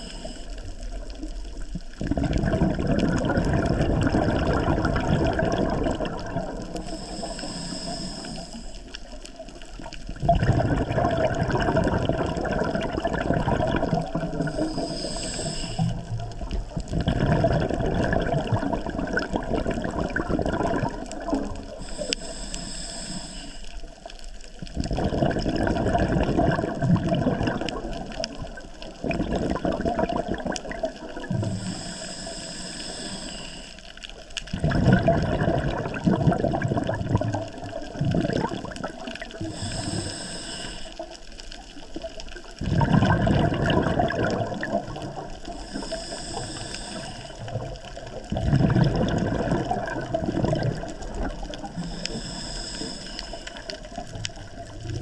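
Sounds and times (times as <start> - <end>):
regulator inhale hiss: 0.0 - 0.9, 6.7 - 9.1, 14.3 - 16.5, 21.6 - 24.1, 31.4 - 34.1, 39.3 - 41.4, 45.5 - 47.8, 51.4 - 54.1
bubbles gurgling underwater: 0.0 - 7.5, 8.8 - 22.3, 23.9 - 32.1, 33.9 - 40.3, 40.9 - 55.0.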